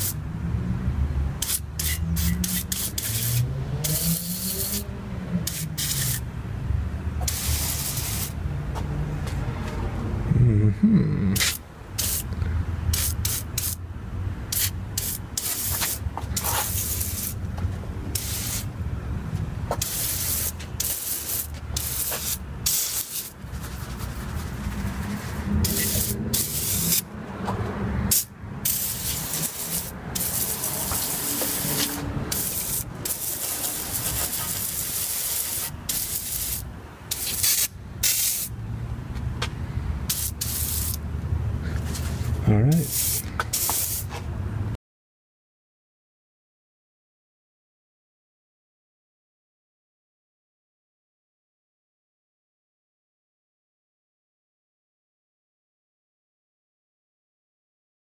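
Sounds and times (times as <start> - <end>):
spray can hissing: 1.4 - 6.2, 7.2 - 8.4, 11.4 - 12.3, 12.9 - 13.8, 14.5 - 17.4, 18.1 - 18.7, 19.7 - 27.1, 28.1 - 38.5, 40.1 - 41.0, 42.8 - 44.1.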